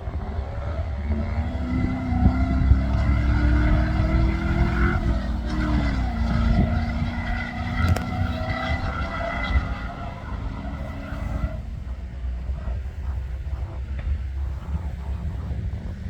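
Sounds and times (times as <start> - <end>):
off-road engine under load: 0.0 - 12.0.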